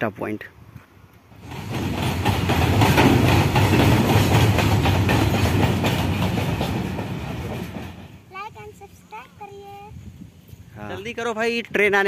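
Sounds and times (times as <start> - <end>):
freight train wheels rumbling: 1.4 - 9.9.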